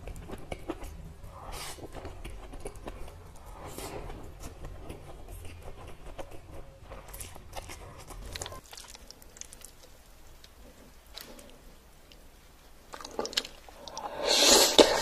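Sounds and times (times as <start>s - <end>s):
chewing noodles: 0.0s - 12.3s, 12.9s - 15.0s
wet mouth clicks: 12.9s - 15.0s.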